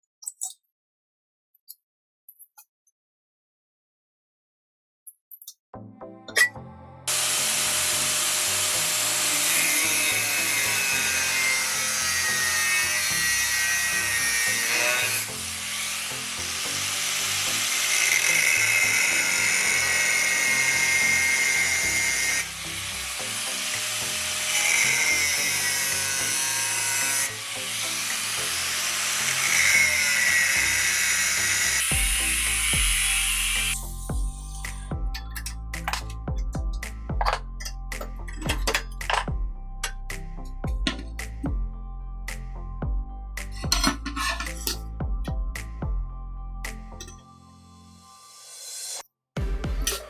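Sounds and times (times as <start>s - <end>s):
background music: 5.8s - 50.0s
power tool grinding steel: 7.1s - 34.0s, 43.6s - 44.8s.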